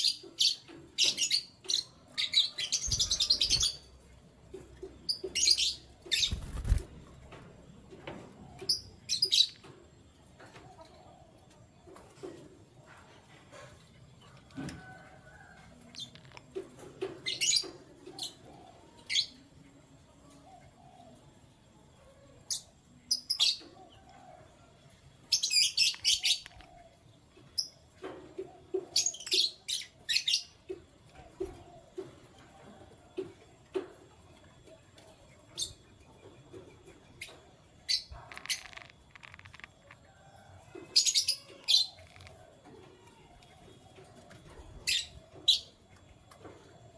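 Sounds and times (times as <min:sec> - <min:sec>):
canaries chirping: 0:00.0 - 0:04.0, 0:04.8 - 0:06.9, 0:37.1 - 0:40.0.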